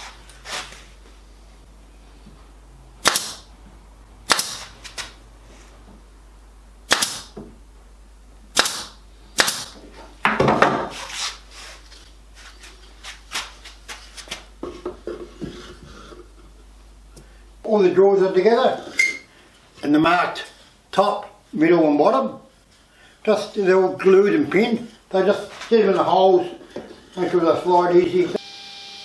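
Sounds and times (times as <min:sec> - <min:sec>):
pin nailer firing: 0:03.0 - 0:03.5, 0:04.3 - 0:04.7, 0:06.9 - 0:07.4, 0:08.5 - 0:09.8.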